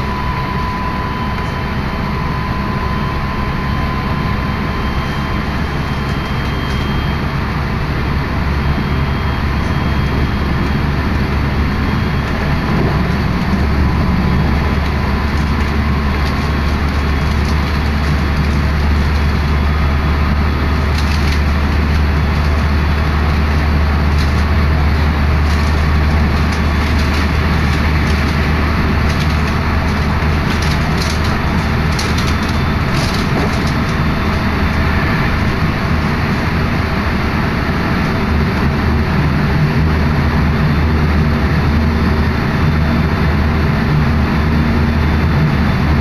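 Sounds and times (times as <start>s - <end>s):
rush of wind: 0.0s - 46.0s
train rumble: 0.0s - 46.0s
scattered clicks: 20.8s - 34.8s.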